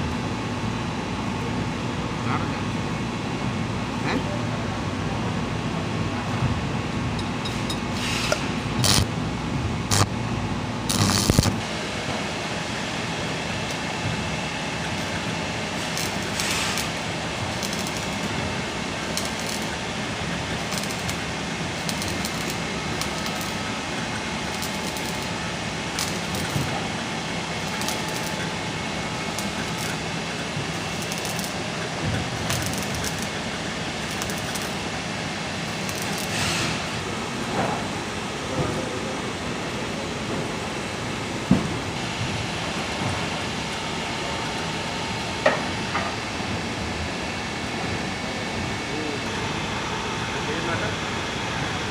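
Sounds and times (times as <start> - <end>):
arc welding crackling hiss: 7.9 - 9.2, 9.8 - 10.2, 10.8 - 11.9, 12.7 - 37.5.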